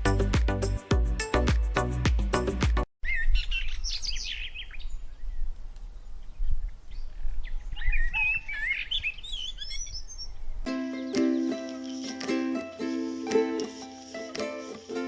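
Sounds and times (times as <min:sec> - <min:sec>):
small birds chirping: 0:03.0 - 0:15.0.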